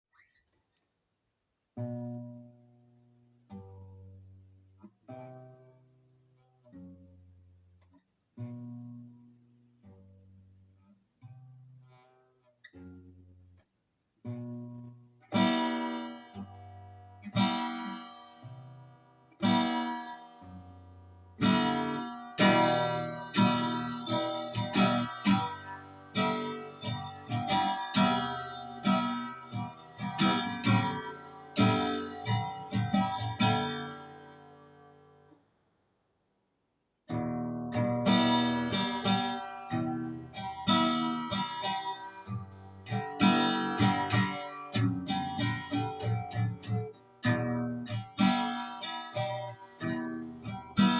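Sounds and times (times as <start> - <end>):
guitar strumming: 1.8 - 2.7, 8.4 - 10.4, 14.2 - 35.4, 37.1 - 50.9.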